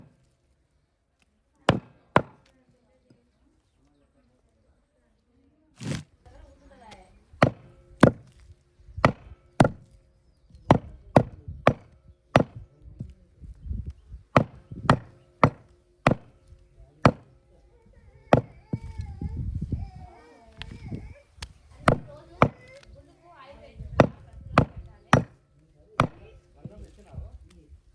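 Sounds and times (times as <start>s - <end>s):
cleaver chopping meat and bone: 1.7s - 2.5s, 6.9s - 13.1s, 14.3s - 17.4s, 18.3s - 19.0s, 21.8s - 22.9s, 24.0s - 25.4s, 26.0s - 26.9s.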